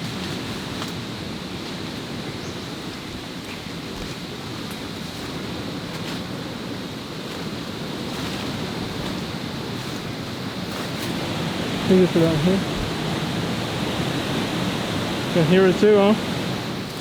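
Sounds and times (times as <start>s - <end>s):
waterfall roaring: 10.4s - 17.0s.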